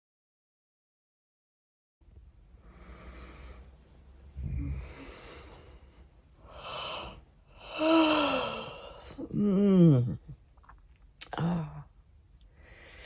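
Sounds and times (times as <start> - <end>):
person breathing: 2.6 - 10.1, 12.5 - 13.0
person sighing: 4.4 - 5.6, 6.5 - 10.4, 11.2 - 11.9.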